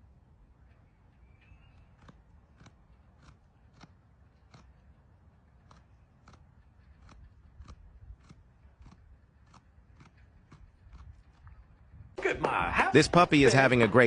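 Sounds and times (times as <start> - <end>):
deer chewing crunchy food: 1.3 - 12.0.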